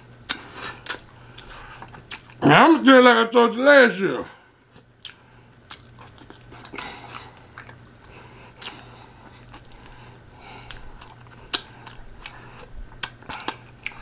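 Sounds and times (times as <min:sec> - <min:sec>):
person chewing with lip smacks: 0:00.2 - 0:02.4, 0:04.8 - 0:14.0.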